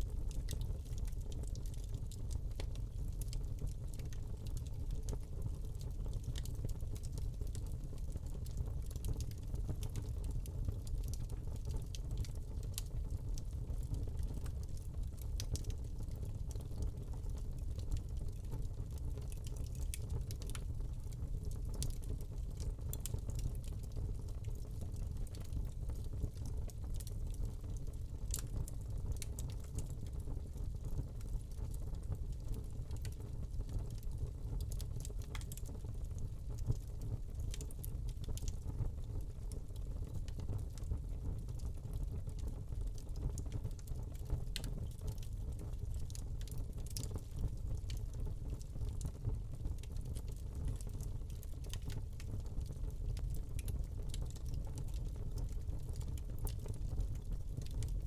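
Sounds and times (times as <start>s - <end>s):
log fire crackling: 0.0s - 58.0s
low rumble of flames: 0.0s - 58.0s.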